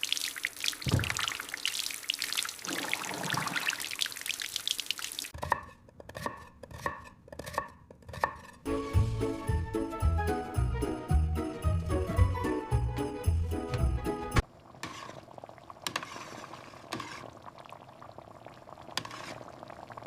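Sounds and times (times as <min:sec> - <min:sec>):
food sizzling and splashing: 0:00.0 - 0:05.4, 0:14.4 - 0:20.0.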